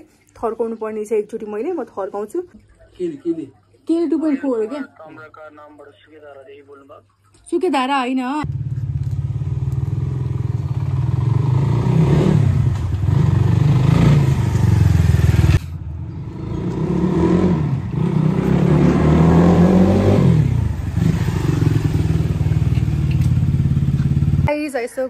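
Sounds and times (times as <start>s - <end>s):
motorbike engine revving: 8.4s - 24.5s.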